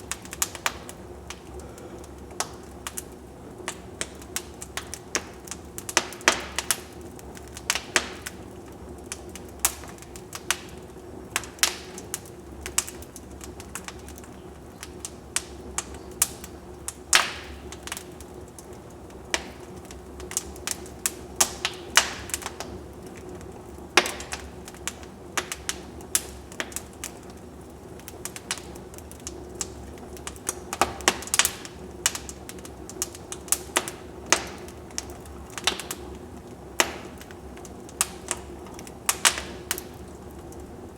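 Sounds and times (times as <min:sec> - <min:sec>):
wood fire crackling: 0:00.0 - 0:40.9
sharp pops and snaps: 0:02.3 - 0:36.1, 0:36.8 - 0:40.7.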